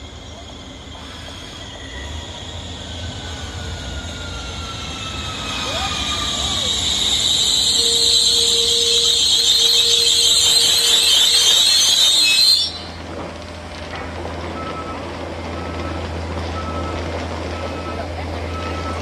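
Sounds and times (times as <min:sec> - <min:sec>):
train brakes squealing: 0:00.0 - 0:13.1
train low hum: 0:00.0 - 0:19.0.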